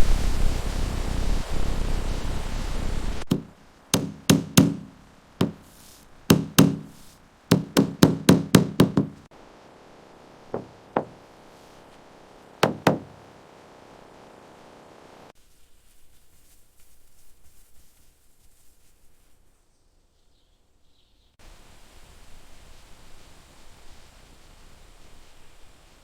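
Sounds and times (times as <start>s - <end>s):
hammer knocking on timber: 3.3s - 9.3s, 10.6s - 11.2s, 12.6s - 13.3s.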